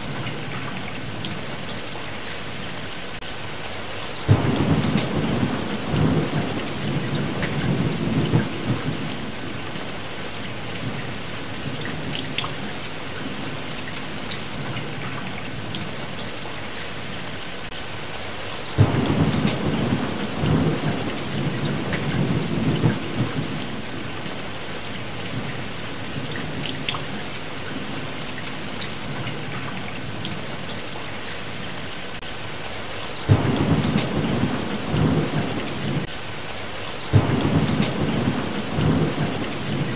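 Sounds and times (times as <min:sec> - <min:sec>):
steady rain: 0:00.0 - 0:39.9
thunder rumbling: 0:04.3 - 0:09.9, 0:18.8 - 0:24.4, 0:33.3 - 0:36.1, 0:37.1 - 0:39.9.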